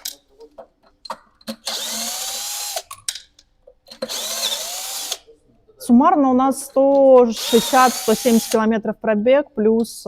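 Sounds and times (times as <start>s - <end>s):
cordless drill spinning: 1.6s - 2.9s, 4.0s - 5.3s, 7.3s - 8.6s.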